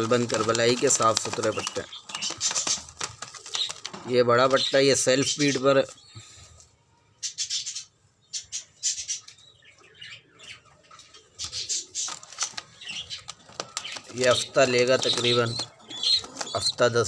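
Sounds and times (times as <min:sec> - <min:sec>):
young pigeon squeaking: 0:11.2 - 0:17.0.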